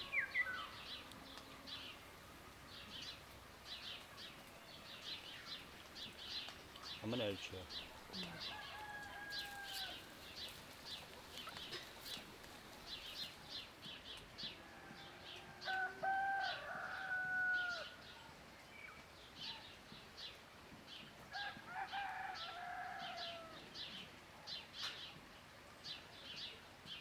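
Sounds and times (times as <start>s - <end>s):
small birds chirping: 0.0s - 15.4s
rooster crowing: 7.9s - 10.2s, 14.6s - 18.0s, 21.3s - 23.6s.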